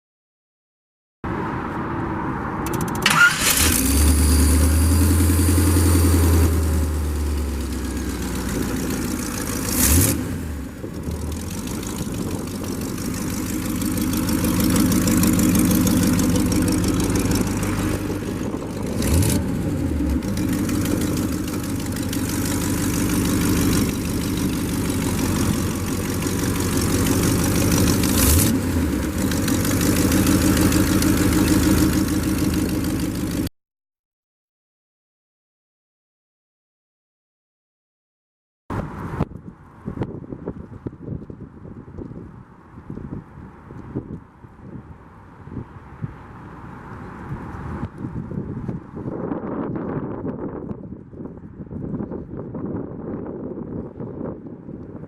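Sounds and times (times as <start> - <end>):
engine revving: 2.6 - 33.5
engine starting and idling: 2.7 - 10.1, 11.2 - 33.5.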